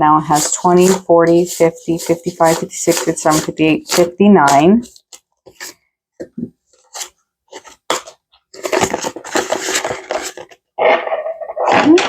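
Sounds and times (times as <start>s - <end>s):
paper money rustling: 0.2s - 5.8s, 6.7s - 10.6s.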